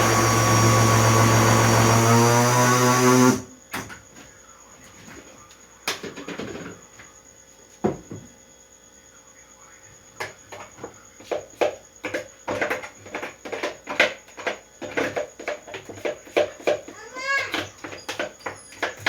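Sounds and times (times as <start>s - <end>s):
kitchen things knocking and clattering: 5.9s - 6.8s, 10.2s - 19.0s.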